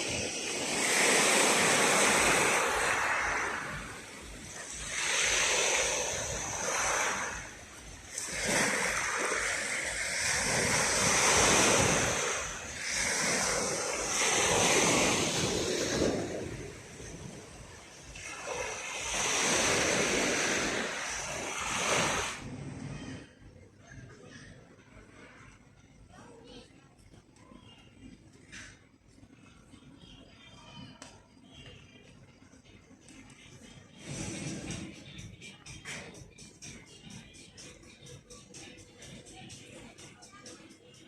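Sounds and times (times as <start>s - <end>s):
sea waves breaking on shore: 0.0s - 22.5s.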